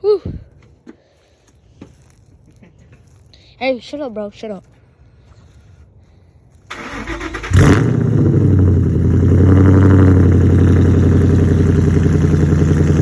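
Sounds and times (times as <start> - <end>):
car starter cranking: 6.7 - 8.0
loud engine idle: 9.0 - 13.0.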